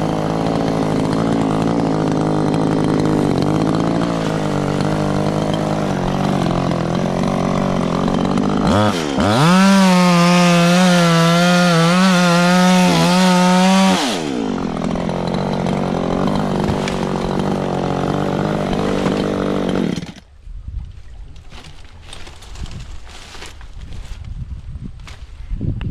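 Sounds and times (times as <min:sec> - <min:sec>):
chainsaw idling and revving: 0:00.0 - 0:20.3.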